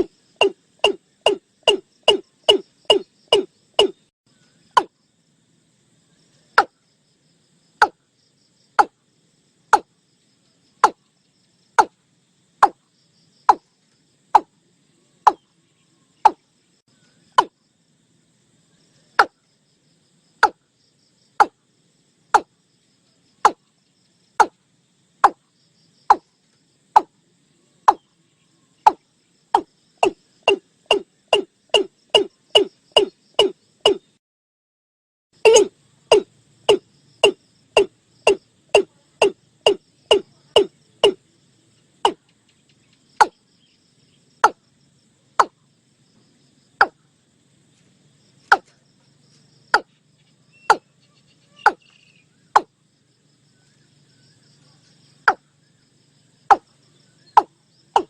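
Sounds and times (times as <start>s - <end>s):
bird calling deep kok notes: 0.0s - 4.0s, 29.6s - 34.0s, 35.4s - 41.2s.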